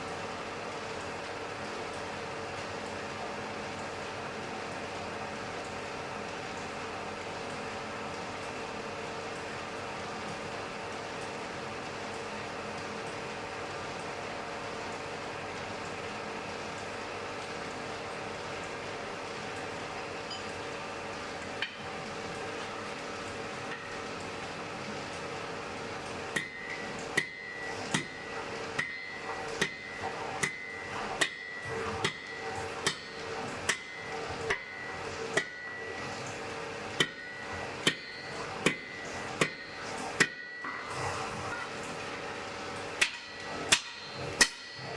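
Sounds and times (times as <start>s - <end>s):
steady hum: 19.9s - 44.9s
hammer striking anvil: 26.4s - 28.2s, 28.8s - 34.8s, 35.4s - 35.8s, 37.0s - 40.8s, 43.0s - 44.9s.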